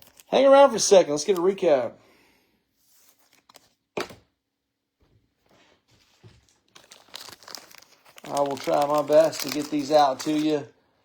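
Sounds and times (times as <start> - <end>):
plastic sleeves rustling: 0.0 - 1.7, 2.8 - 4.2, 5.4 - 10.8.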